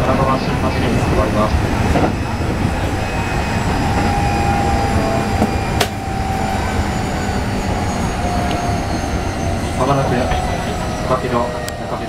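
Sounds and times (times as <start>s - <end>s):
train wheels rumbling on rail: 0.0s - 12.0s
electric motor whine: 2.2s - 11.8s.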